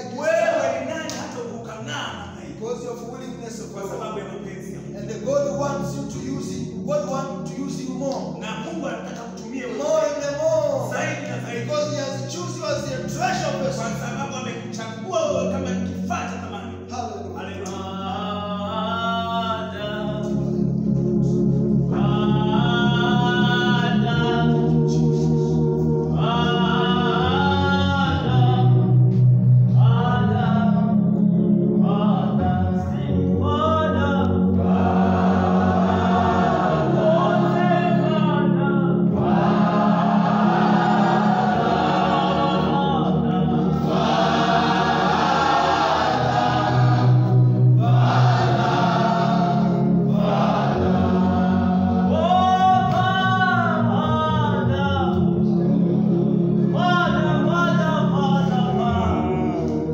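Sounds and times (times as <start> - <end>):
choir singing worship song: 0.0 - 59.9
sustained low accompaniment: 0.0 - 59.9.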